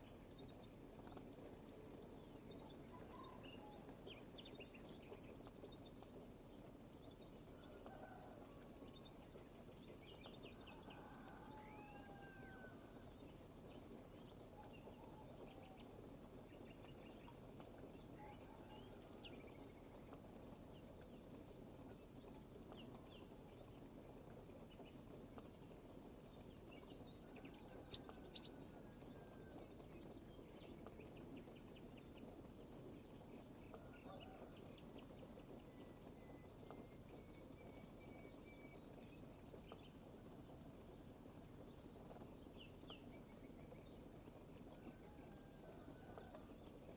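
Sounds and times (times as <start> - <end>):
low background hiss: 0.0 - 46.9
birds chirping and trilling: 27.7 - 28.6.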